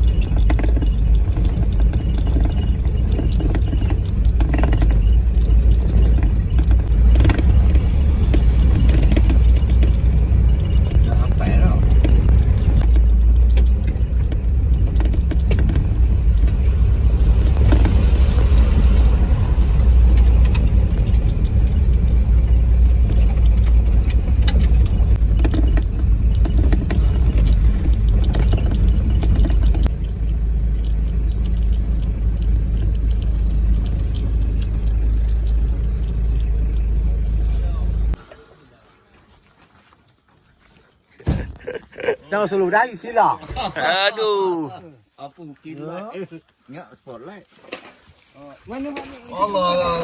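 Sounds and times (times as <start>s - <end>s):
knocks and rattles: 0.0s - 38.2s
off-road vehicle rumbling: 0.0s - 39.4s, 41.2s - 50.0s.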